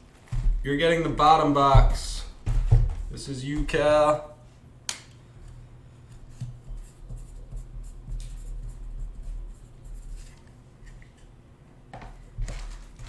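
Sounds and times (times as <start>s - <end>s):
low steady hum: 0.0s - 13.0s
cardboard boxes scratching and rustling: 12.4s - 13.0s.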